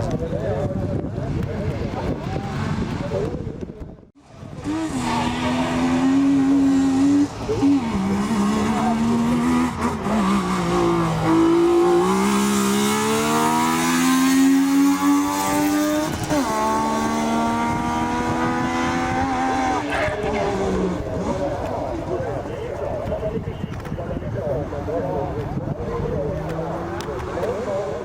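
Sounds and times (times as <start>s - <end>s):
car engine accelerating hard: 4.4s - 22.0s.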